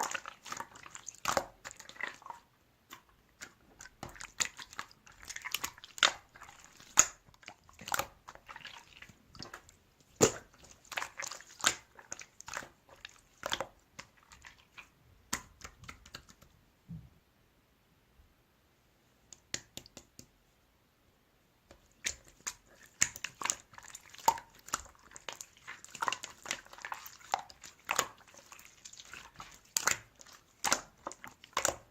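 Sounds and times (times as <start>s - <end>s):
slime squished by hand: 0.0s - 16.4s, 22.0s - 31.9s
soft low thump: 16.8s - 17.2s.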